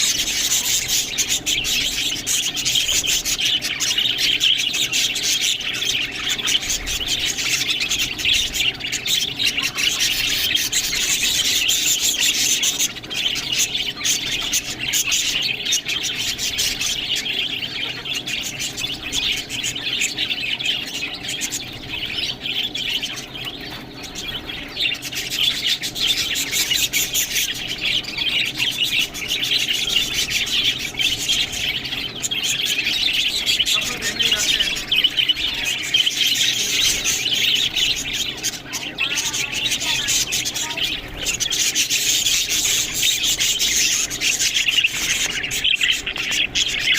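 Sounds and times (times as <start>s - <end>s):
budgerigars chattering and chirping: 0.0s - 46.9s.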